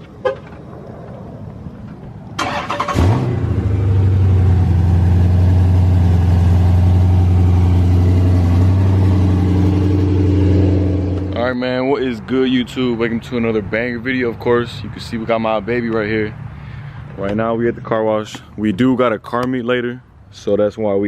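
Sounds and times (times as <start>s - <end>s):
car engine cranking and idling: 0.0s - 16.4s.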